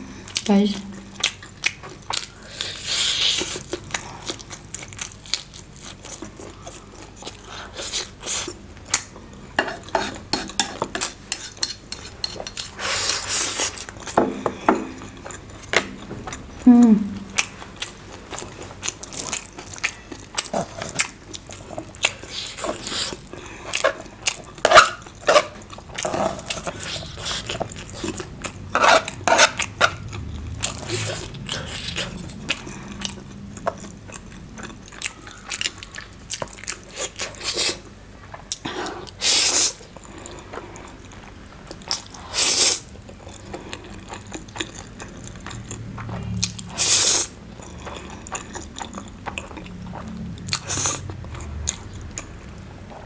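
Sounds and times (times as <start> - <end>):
chewing: 1.1 - 16.6, 17.2 - 53.0
slurping noodles: 11.4 - 13.9
person murmuring: 16.6 - 17.3.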